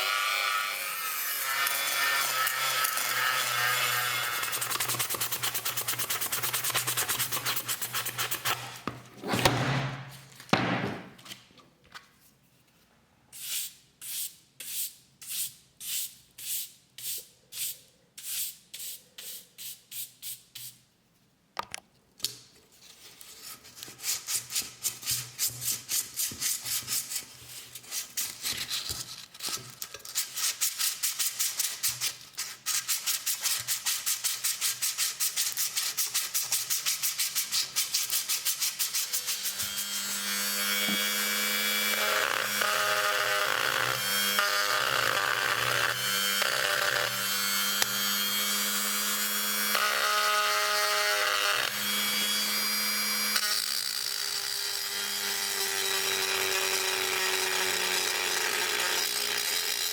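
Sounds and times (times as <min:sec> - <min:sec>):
rubbing on a metal cup: 0:04.3 - 0:08.8.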